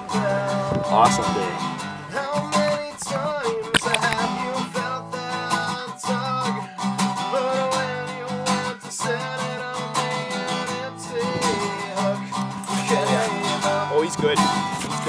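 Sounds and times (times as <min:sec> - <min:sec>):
strummed acoustic guitar: 0:00.0 - 0:15.0
melodic lead line: 0:00.8 - 0:04.3.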